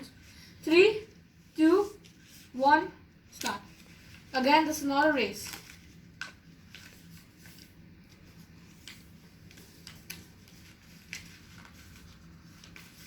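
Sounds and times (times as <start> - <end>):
low steady hum: 0.0 - 13.0
paper rustling and crinkling: 3.4 - 13.0.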